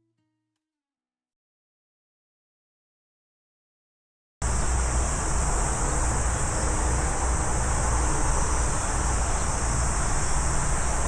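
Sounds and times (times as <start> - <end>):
insects chirring: 4.4 - 11.0
wind rumbling on microphone: 4.4 - 11.0.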